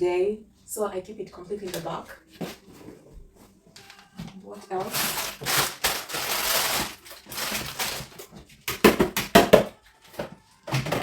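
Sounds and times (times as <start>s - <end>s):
plastic packets crinkling: 3.8s - 9.4s.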